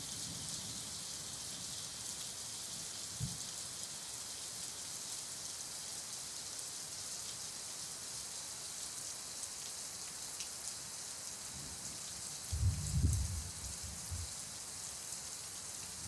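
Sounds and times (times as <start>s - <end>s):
heavy rain pouring: 12.4s - 14.8s.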